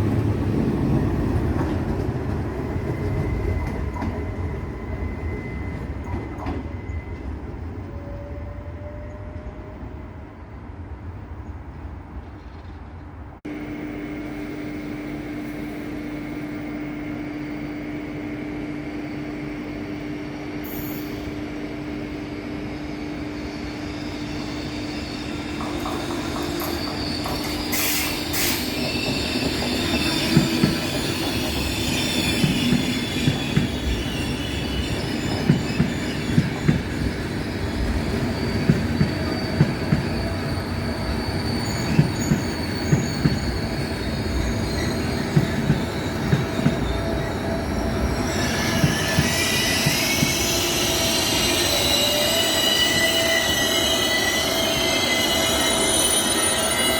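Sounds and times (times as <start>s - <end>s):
train hum: 0.0s - 56.9s
high wheel squeal: 22.2s - 56.9s.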